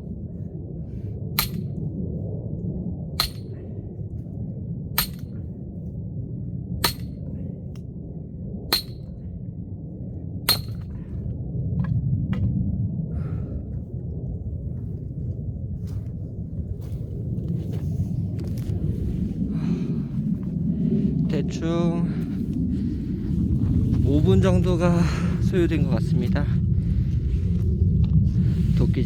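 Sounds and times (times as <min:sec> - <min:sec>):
axe striking a log: 0:01.4 - 0:01.7, 0:03.2 - 0:03.5, 0:05.0 - 0:05.3, 0:06.8 - 0:07.1, 0:08.7 - 0:09.0, 0:10.5 - 0:10.8.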